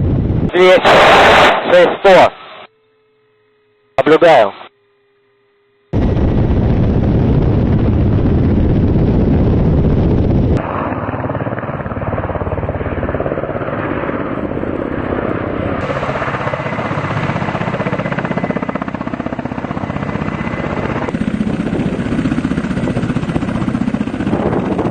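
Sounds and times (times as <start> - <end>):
turbine noise: 0.0 - 24.9
helicopter rotors chopping: 5.9 - 24.9.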